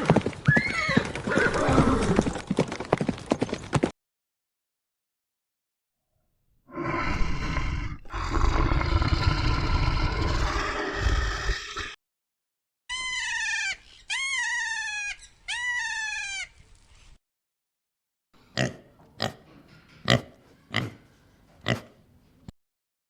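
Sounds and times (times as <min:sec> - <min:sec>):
animal high-pitched calls: 0:12.9 - 0:16.6.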